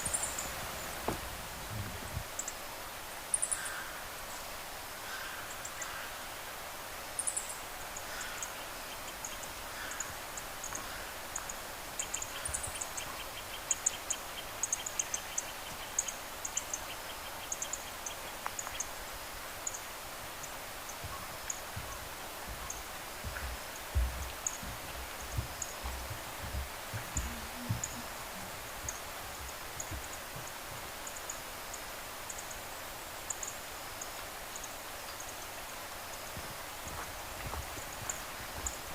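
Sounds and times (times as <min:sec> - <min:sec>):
small birds chirping: 0:00.0 - 0:02.6, 0:07.1 - 0:38.9
rapid trill of ticks: 0:08.0 - 0:19.0, 0:19.6 - 0:32.6.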